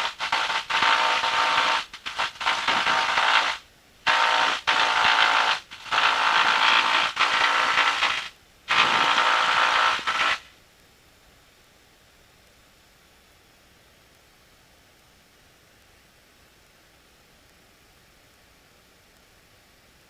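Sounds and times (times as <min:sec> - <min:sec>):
faint hiss: 0:00.0 - 0:20.0.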